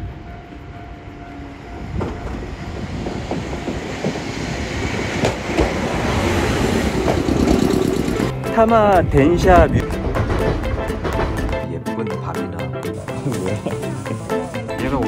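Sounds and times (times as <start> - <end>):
electric train running on rails: 0.0 - 11.6, 12.9 - 15.0
wheels clicking over track: 2.0 - 8.3.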